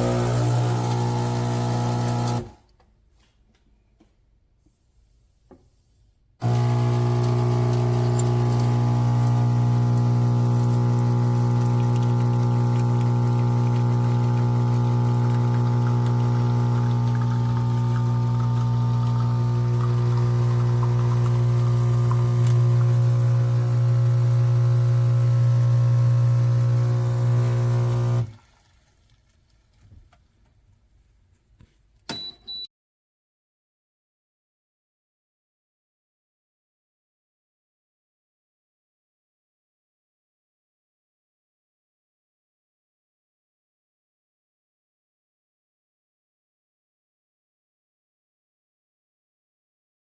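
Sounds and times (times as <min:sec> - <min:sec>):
espresso machine humming: 0:00.0 - 0:02.5, 0:06.4 - 0:28.3.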